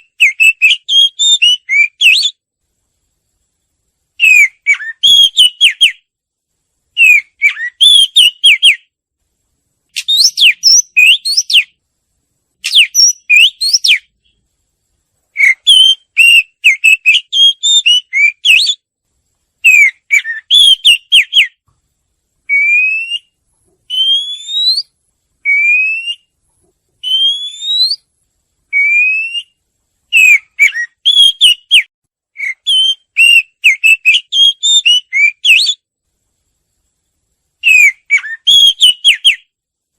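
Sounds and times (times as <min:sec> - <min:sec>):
songbird whistling rapid phrases: 0:00.0 - 0:02.4, 0:04.2 - 0:06.1, 0:06.9 - 0:08.9, 0:09.9 - 0:11.8, 0:12.6 - 0:14.4, 0:15.3 - 0:18.8, 0:19.6 - 0:21.6, 0:22.4 - 0:26.3, 0:27.0 - 0:28.1, 0:28.7 - 0:35.8, 0:37.6 - 0:39.5.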